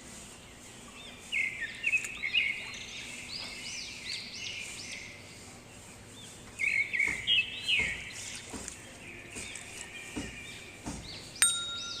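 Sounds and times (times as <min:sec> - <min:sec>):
birds chirping: 0:00.0 - 0:12.0
sharp chime: 0:11.4 - 0:12.0.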